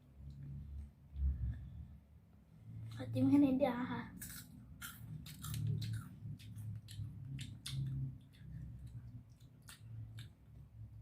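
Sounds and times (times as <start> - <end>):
person chewing crispy food: 4.2 - 10.6.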